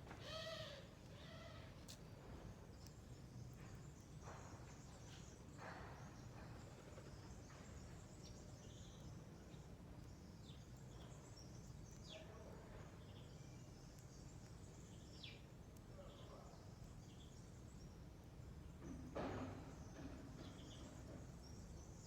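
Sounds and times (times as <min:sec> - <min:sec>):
low steady background rumble: 0:00.0 - 0:05.6.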